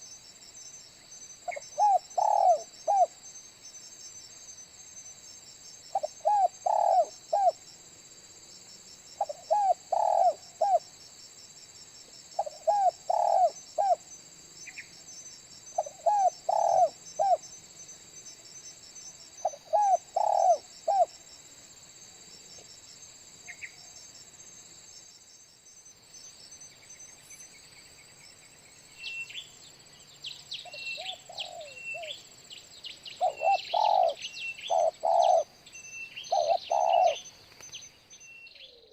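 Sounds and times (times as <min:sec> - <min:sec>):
high insect drone: 0:00.0 - 0:38.9
bird chirps: 0:01.4 - 0:03.2, 0:15.7 - 0:17.5, 0:19.4 - 0:21.1, 0:26.2 - 0:38.9
dove cooing: 0:01.5 - 0:03.1, 0:06.0 - 0:07.6, 0:09.2 - 0:10.8, 0:12.4 - 0:14.0, 0:15.8 - 0:17.4, 0:19.4 - 0:21.1, 0:31.0 - 0:32.2, 0:33.2 - 0:35.5, 0:36.3 - 0:37.3.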